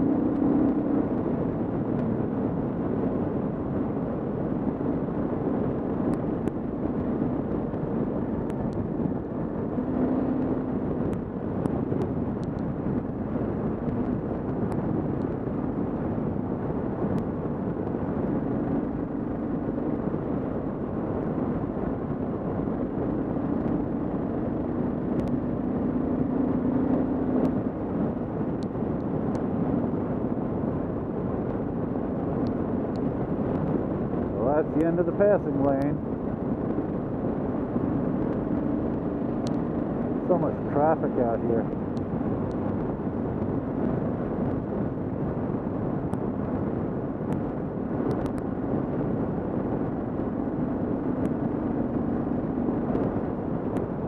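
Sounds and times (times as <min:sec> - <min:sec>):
wind rush: 0:00.0 - 0:54.0
motorcycle engine running: 0:35.2 - 0:40.0.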